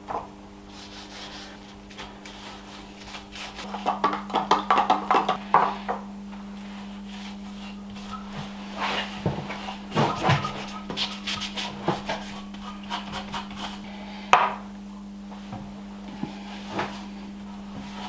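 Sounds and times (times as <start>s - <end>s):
cloth rubbing on wood: 0.7s - 4.0s, 6.6s - 13.9s.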